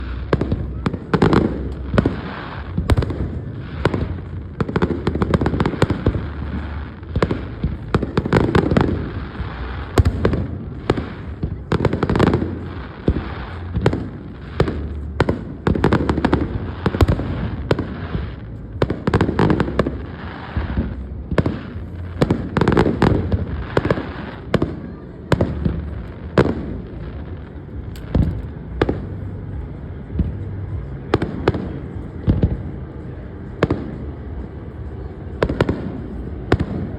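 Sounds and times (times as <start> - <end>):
fireworks bangs and crackles: 0.0 - 36.9
low rumble of booms: 25.4 - 36.9.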